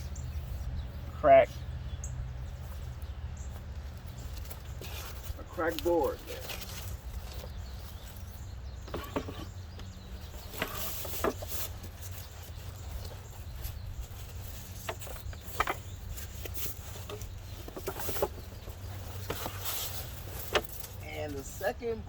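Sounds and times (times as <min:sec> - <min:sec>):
birds chirping: 0:00.0 - 0:22.0
knocks and rustles: 0:03.4 - 0:21.0.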